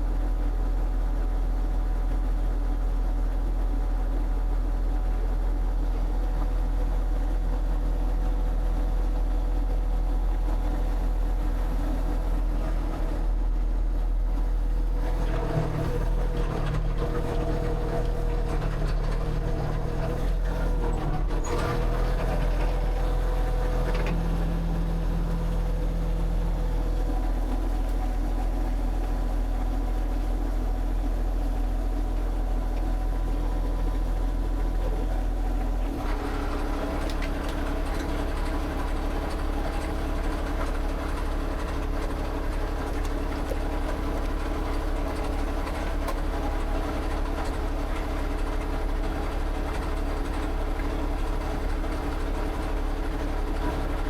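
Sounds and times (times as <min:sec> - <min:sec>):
engine humming: 0:11.6 - 0:48.3.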